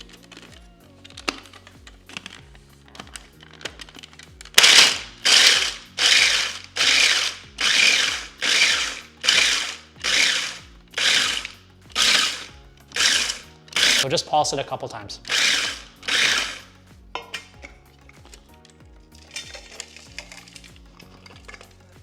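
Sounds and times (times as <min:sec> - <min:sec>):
blender pulsing: 0:04.6 - 0:14.0, 0:15.2 - 0:16.7.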